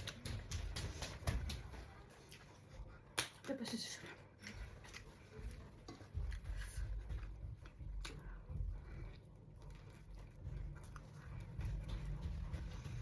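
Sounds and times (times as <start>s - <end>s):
person chewing food: 4.0s - 13.0s.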